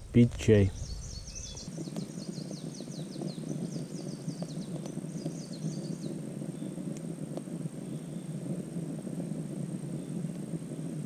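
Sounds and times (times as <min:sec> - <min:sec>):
low steady rustling: 0:00.0 - 0:11.0
small bird trilling: 0:00.7 - 0:06.7
faint ticks: 0:01.5 - 0:11.0.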